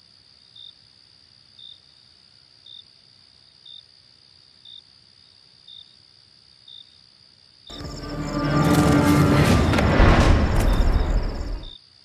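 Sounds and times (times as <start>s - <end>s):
crickets trilling: 0.0s - 12.0s
short cricket chirp: 7.7s - 11.8s.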